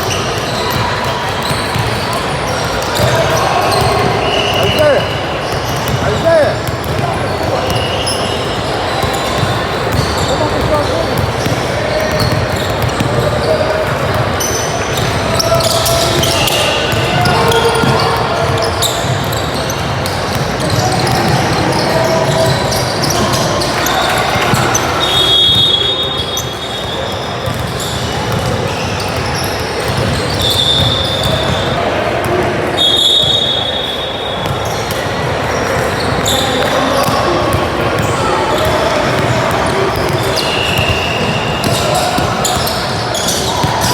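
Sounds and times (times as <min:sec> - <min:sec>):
shoe squeaks: 0:00.0 - 0:31.8, 0:32.7 - 0:43.9
basketball bouncing on court: 0:00.0 - 0:43.9
crowd and players din: 0:00.0 - 0:43.9
referee whistle blasts: 0:25.0 - 0:27.3, 0:32.7 - 0:34.8, 0:40.3 - 0:43.4.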